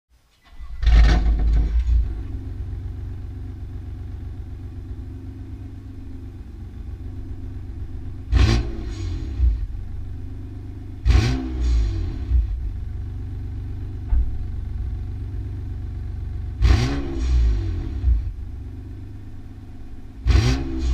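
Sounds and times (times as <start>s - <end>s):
car engine idling: 0.4s - 20.9s
engine revving: 0.7s - 3.1s, 7.0s - 14.2s, 16.3s - 18.5s, 20.2s - 20.9s.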